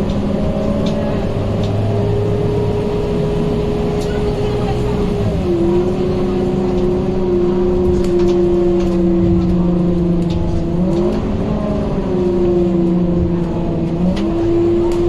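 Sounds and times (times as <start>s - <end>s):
bus diesel engine rumbling: 0.0s - 15.0s.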